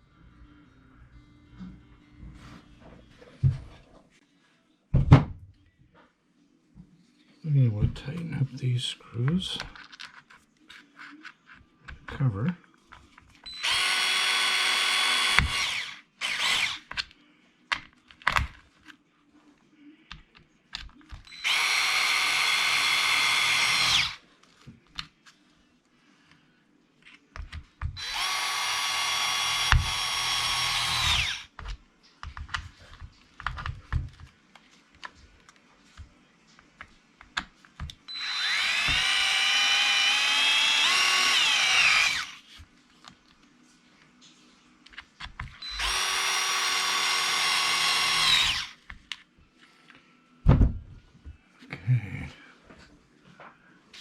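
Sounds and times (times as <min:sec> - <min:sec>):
cordless drill whirring: 0:13.5 - 0:16.9, 0:21.2 - 0:24.2, 0:27.9 - 0:31.5, 0:38.1 - 0:42.5, 0:45.6 - 0:48.8.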